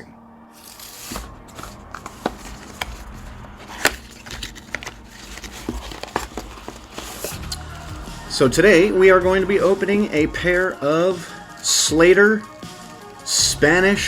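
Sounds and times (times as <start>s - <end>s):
packaging rustle: 0.6s - 8.1s
packaging clicks and taps: 1.1s - 7.7s.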